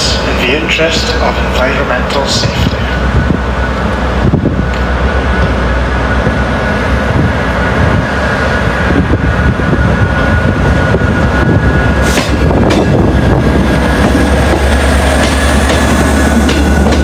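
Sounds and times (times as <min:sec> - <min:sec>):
train moving: 0:00.0 - 0:17.0.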